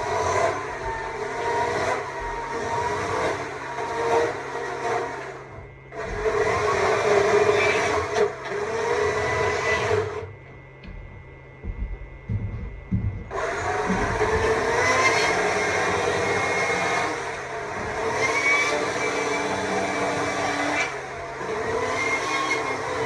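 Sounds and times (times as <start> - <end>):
battery chainsaw cutting wood: 0.0 - 5.4, 13.3 - 23.0
low knocks: 10.8 - 15.0.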